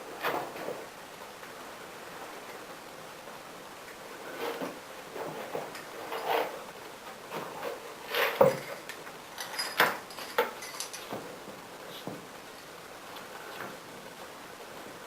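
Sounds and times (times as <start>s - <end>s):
steady hiss: 0.0s - 15.0s
knocks and clatters: 7.3s - 11.4s.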